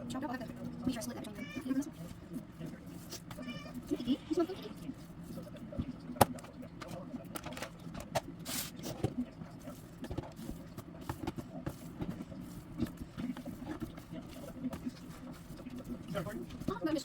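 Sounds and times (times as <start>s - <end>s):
plastic containers clicking and knocking: 6.2s - 8.3s.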